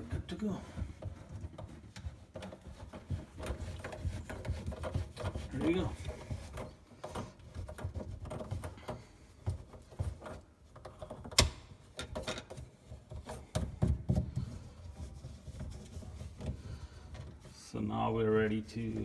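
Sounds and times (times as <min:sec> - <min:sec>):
tools clicking on drain fittings: 0:01.5 - 0:13.7.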